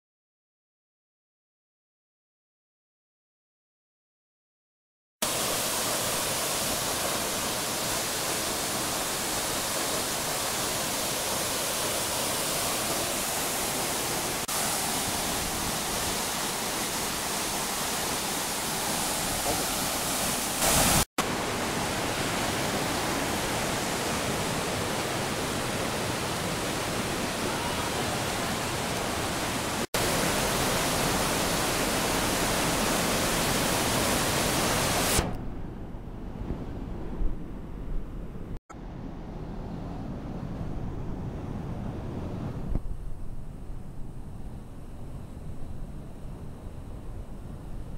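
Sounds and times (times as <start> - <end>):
waterfall rushing: 5.2 - 35.3.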